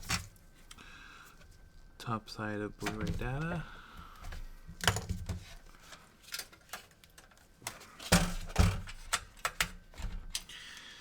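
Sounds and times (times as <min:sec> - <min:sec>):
small parts clicking and knocking: 0:04.8 - 0:10.6.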